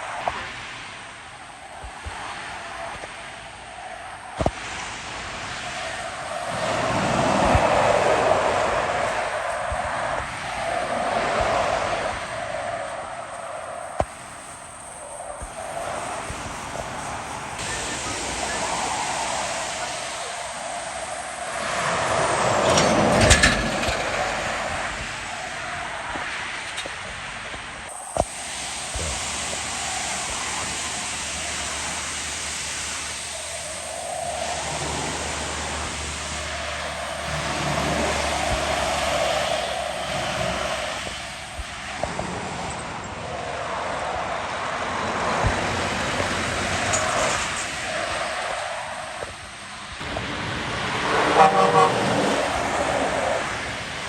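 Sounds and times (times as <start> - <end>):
truck rattle: 22.4 - 25.3
vehicle passing by: 31.2 - 42.6, 50.0 - 54.0
heavy truck driving past: 33.4 - 41.6, 50.0 - 53.8.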